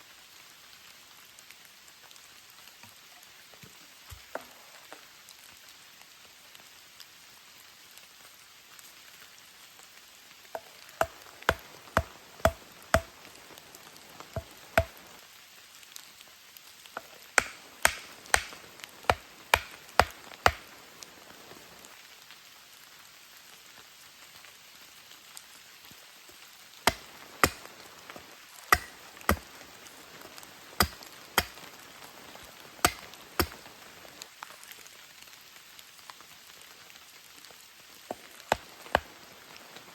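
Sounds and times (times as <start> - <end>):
steady rain: 0.0 - 39.9
sharp chopping strikes: 10.6 - 13.2, 14.3 - 15.0, 17.4 - 20.7, 26.9 - 29.6, 30.8 - 31.7, 32.8 - 33.6.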